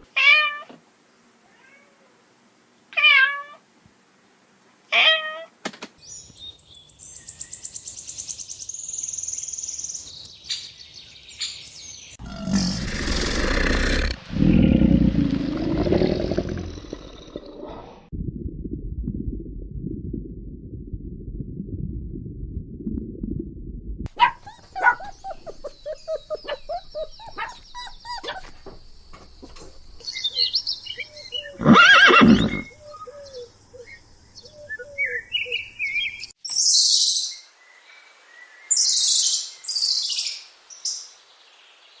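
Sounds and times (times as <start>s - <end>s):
loud long animal call: 12.2s - 18.0s
low rumbling noise: 12.2s - 24.1s
animal chirping and clucking calls: 24.2s - 28.8s.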